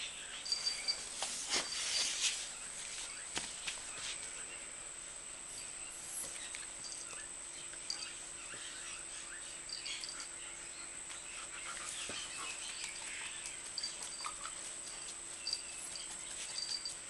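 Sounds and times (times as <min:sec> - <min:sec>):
puppies squeaking: 0:12.0 - 0:17.0.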